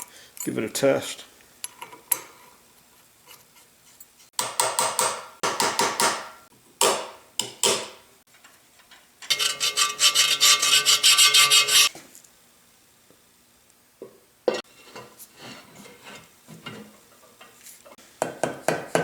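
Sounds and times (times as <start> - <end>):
hand tool rasping on metal: 9.3 - 11.9.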